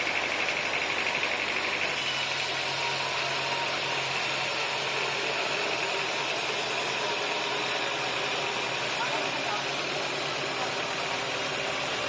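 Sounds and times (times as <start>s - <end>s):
sawmill machinery running: 0.0s - 12.0s.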